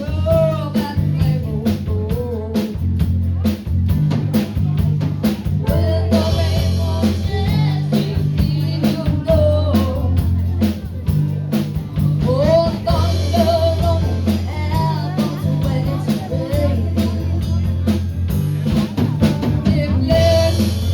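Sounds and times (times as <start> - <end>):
bass line: 0.0 - 20.9
drum kit beat: 0.0 - 20.9
guitar: 0.0 - 20.9
bending melody line: 5.5 - 10.2, 12.2 - 20.9.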